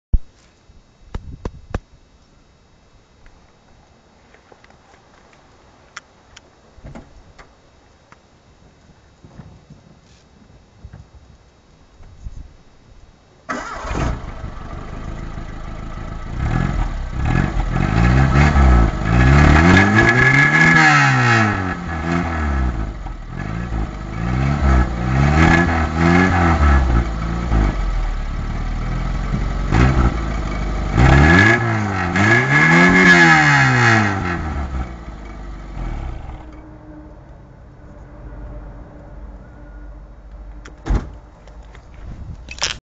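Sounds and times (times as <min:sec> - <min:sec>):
car engine idling: 0:13.5 - 0:20.2, 0:21.7 - 0:36.7
car engine starting: 0:13.5 - 0:36.6
engine revving: 0:13.5 - 0:36.6.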